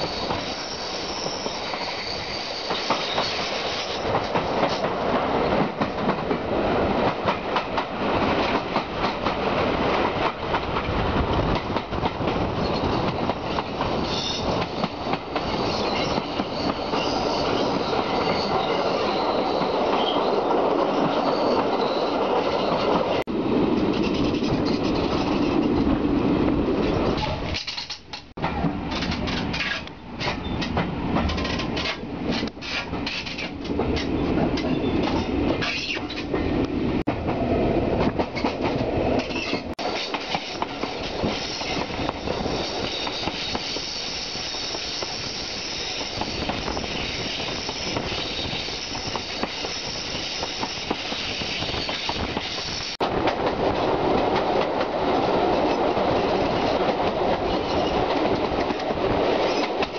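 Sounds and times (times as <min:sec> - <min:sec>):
train wheels rumbling on track: 0:00.0 - 0:59.9
wheels clicking over rail joints: 0:26.8 - 0:37.4.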